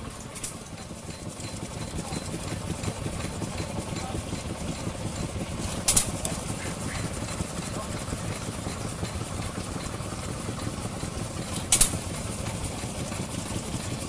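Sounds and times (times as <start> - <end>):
vintage engine running: 0.0 - 14.0
sharp click: 5.8 - 6.4, 11.5 - 12.0.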